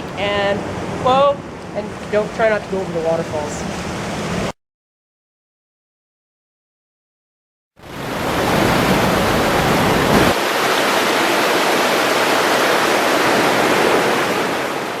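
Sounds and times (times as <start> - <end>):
waterfall rushing: 7.8 - 15.0.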